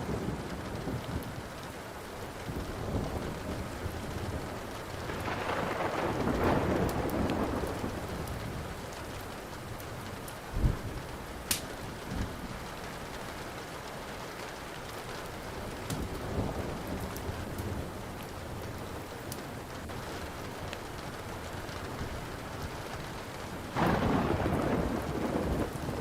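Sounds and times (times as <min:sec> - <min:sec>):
steady rain: 0:00.0 - 0:26.0
wood fire crackling: 0:00.0 - 0:26.0
thunder rolling: 0:02.5 - 0:08.9, 0:10.0 - 0:11.2, 0:23.6 - 0:26.0.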